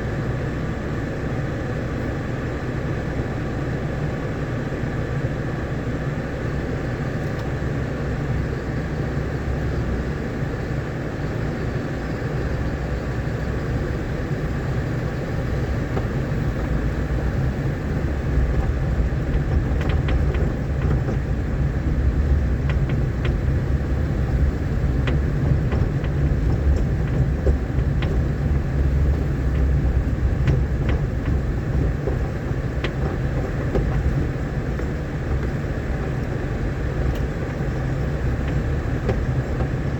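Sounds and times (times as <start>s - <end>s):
vehicle engine and road rumble: 0.0s - 39.9s
sharp clicks and knocks: 15.6s - 39.9s.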